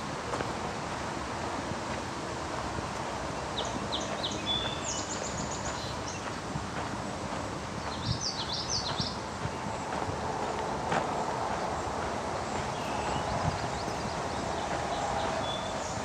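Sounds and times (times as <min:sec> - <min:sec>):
steady outdoor hiss: 0:00.0 - 0:16.0
soft footsteps: 0:00.2 - 0:01.0, 0:04.0 - 0:16.0
songbird chirping: 0:02.8 - 0:16.0.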